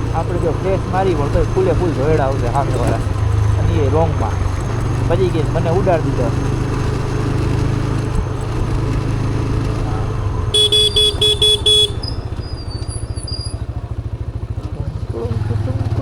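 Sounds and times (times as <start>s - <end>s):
motorcycle engine running: 0.0s - 16.0s
vehicle horn beeping: 10.5s - 13.7s.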